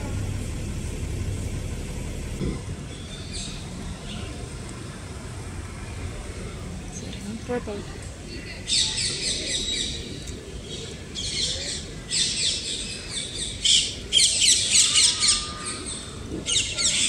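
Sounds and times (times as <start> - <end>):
birds chirping rapidly: 0.2 - 4.5, 8.2 - 17.0.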